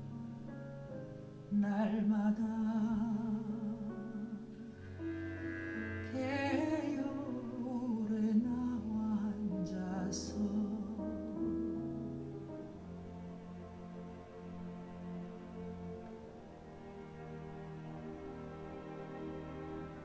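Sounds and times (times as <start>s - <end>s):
singer with vibrato: 1.5s - 11.3s
sustained instrumental accompaniment: 3.9s - 8.7s.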